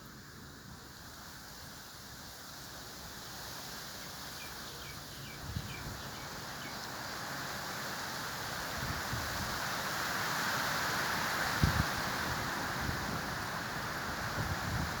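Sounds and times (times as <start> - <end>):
steady outdoor hiss: 0.0 - 15.0
small bird chirping: 4.4 - 6.9.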